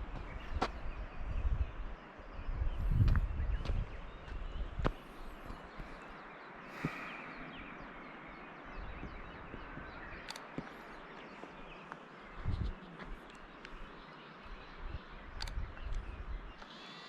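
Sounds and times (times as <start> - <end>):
footsteps on a trail: 0.0 - 1.0, 2.8 - 7.3, 9.0 - 14.7
wild birds calling: 3.4 - 17.0.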